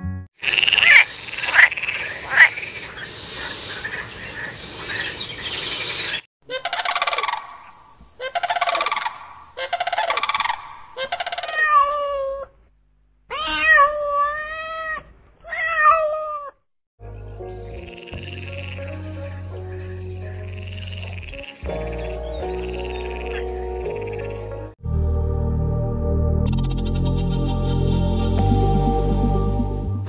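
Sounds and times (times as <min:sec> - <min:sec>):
frogs croaking: 0:00.4 - 0:11.7, 0:17.5 - 0:24.7.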